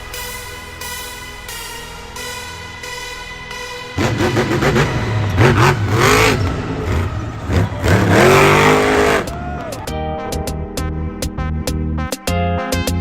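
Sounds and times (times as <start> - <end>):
music: 0.0 - 13.0
car engine revving: 4.0 - 9.8.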